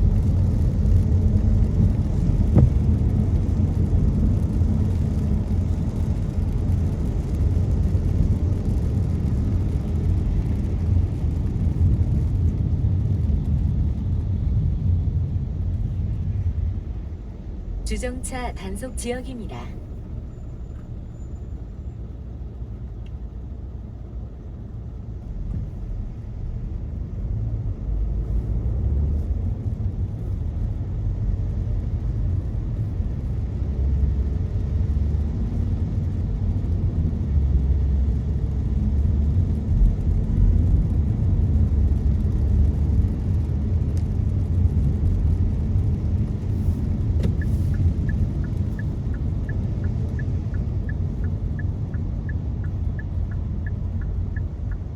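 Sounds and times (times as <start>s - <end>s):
car road noise on wet road: 0.0s - 54.9s
light regular ticking: 47.3s - 54.9s.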